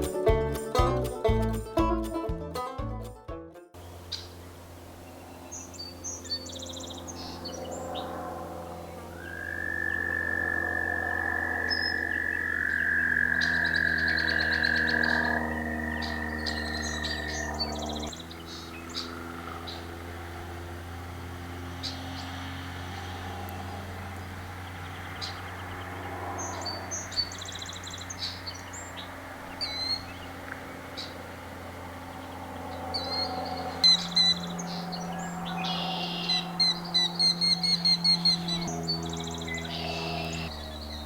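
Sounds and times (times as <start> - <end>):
wild birds chirping: 3.8 - 41.0.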